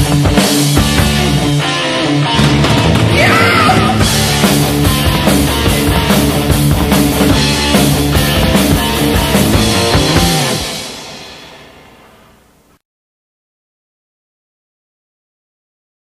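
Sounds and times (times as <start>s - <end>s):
heavy metal band playing: 0.0s - 12.2s.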